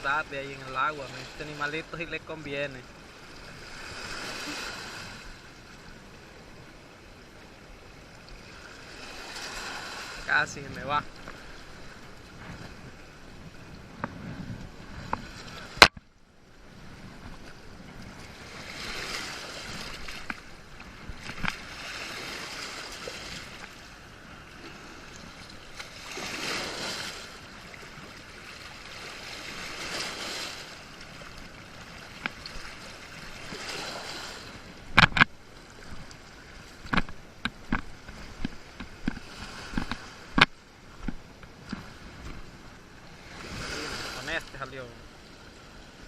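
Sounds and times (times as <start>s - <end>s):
waves washing in: 0.0s - 46.0s
sharp knocks and clicks: 34.9s - 35.3s, 36.8s - 42.4s.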